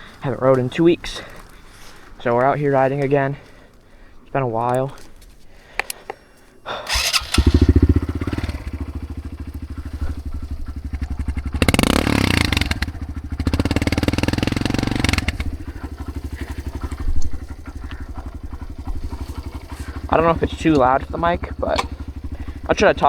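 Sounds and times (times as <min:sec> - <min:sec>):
dirt bike engine: 0:06.6 - 0:23.0.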